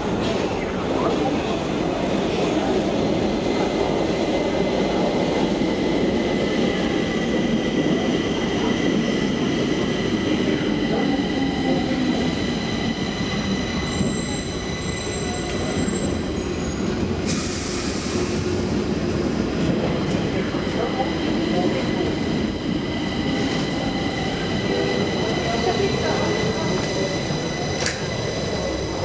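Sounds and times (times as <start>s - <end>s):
train rumble: 0.0s - 29.0s
high wheel squeal: 13.0s - 17.0s
hiss: 17.2s - 18.6s.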